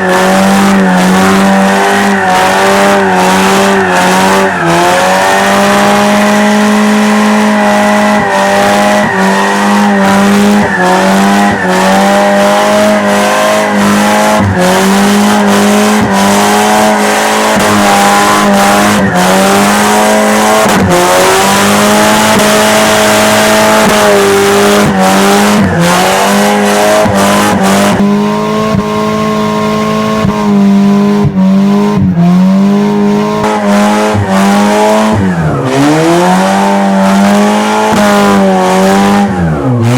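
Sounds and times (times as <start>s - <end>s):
car engine at high revs: 0.0s - 39.9s
tyres spinning and squealing: 0.0s - 39.9s.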